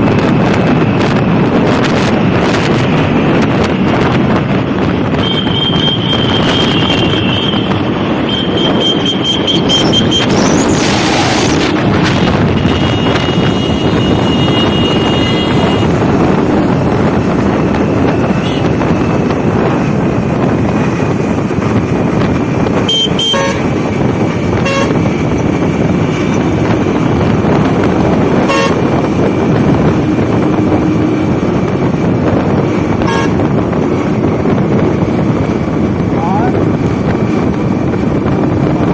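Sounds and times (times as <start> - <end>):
motorcycle engine: 0.0 - 38.9
wind rush: 0.0 - 38.9
horn toots: 5.1 - 16.1, 18.1 - 18.9, 22.8 - 23.8, 24.5 - 25.2, 28.3 - 31.0, 32.9 - 33.6.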